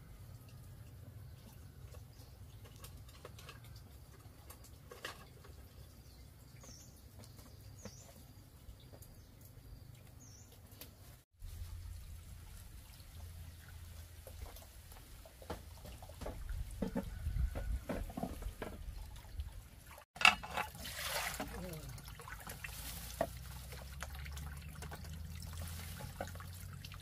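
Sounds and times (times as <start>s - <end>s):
rustling: 22.4s - 23.9s.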